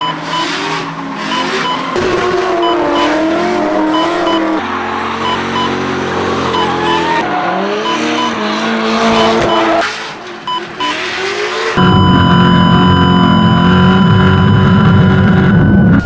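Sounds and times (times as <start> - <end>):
car engine revving: 0.0 - 16.0
tyre squeal: 6.4 - 9.9.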